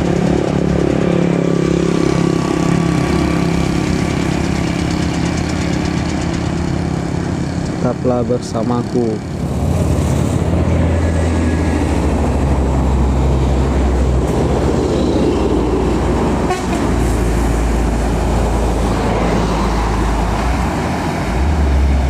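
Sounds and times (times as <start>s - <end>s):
diesel engine rumble: 0.0s - 22.0s
vehicle horn tooting: 16.4s - 17.0s.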